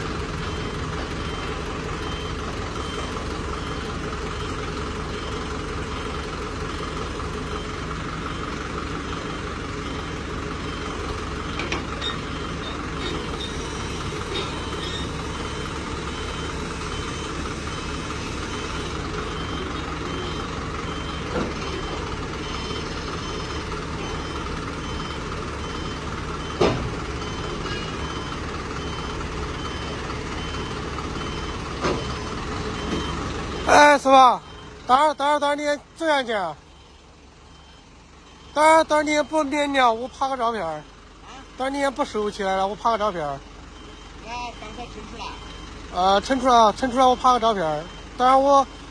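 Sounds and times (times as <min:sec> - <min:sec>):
heavy truck engine running: 0:00.0 - 0:48.9
high-pitched warning beep: 0:27.2 - 0:40.8, 0:43.8 - 0:48.9.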